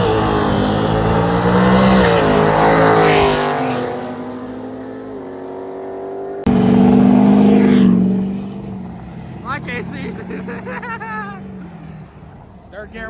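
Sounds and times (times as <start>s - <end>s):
engines accelerating hard: 0.0s - 13.0s.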